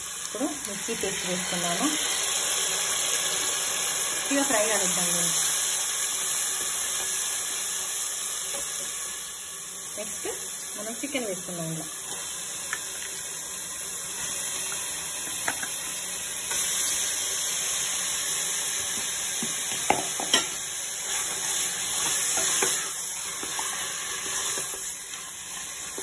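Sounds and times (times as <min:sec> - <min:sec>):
chicken sizzling in hot fat: 0:00.0 - 0:26.0.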